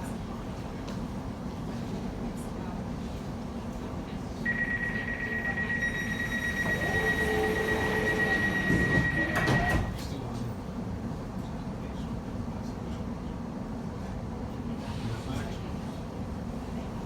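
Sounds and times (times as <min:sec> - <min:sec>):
train low rumble: 0:00.0 - 0:17.0
high door warning tone: 0:04.5 - 0:10.0
train doors knocking shut: 0:06.6 - 0:10.1.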